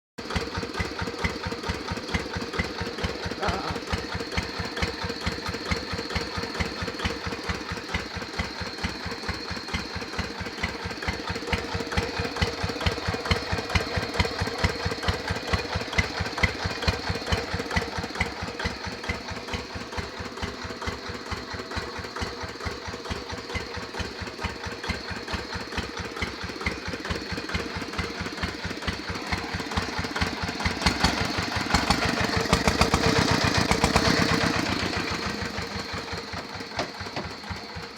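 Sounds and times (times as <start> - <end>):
single-cylinder diesel engine running: 0.2 - 37.9.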